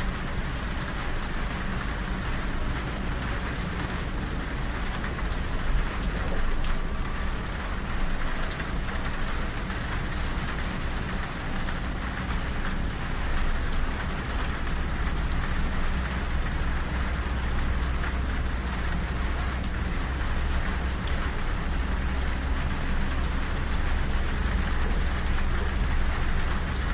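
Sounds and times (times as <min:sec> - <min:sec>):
raindrop ticks: 0:00.0 - 0:26.9
steady rain: 0:00.0 - 0:26.9.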